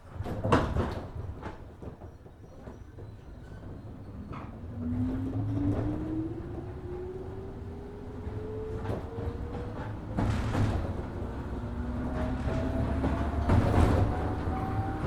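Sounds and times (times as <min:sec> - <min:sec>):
train starting clunk: 0:04.3 - 0:15.0
traction motor whine rising: 0:04.8 - 0:15.0.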